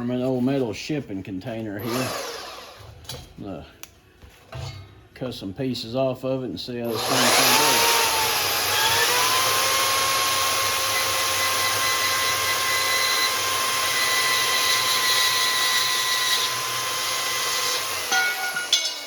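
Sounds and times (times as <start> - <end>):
bandsaw motor whining: 1.8 - 2.9, 6.9 - 19.0.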